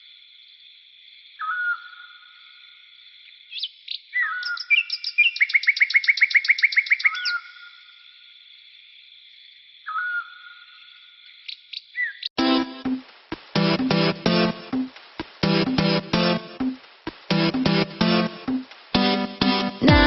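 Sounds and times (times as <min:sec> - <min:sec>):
songbirds singing: 0:01.2 - 0:12.4
steady high hiss: 0:12.7 - 0:19.8.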